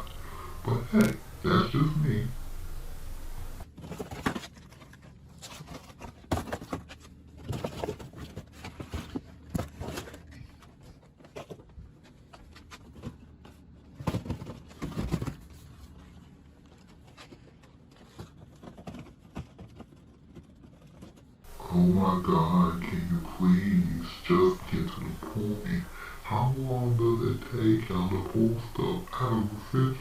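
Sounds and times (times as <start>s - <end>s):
food packages knocking and scraping: 3.6s - 11.7s, 12.5s - 15.7s.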